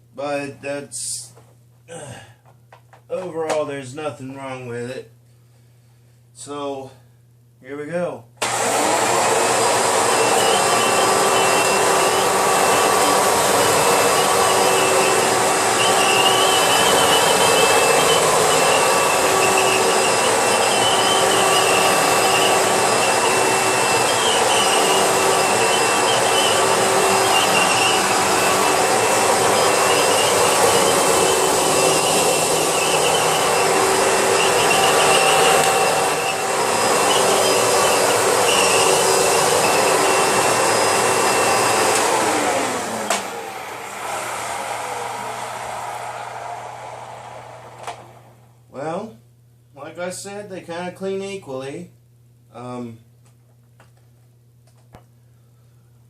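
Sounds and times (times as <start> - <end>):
vacuum cleaner running: 8.4 - 49.1.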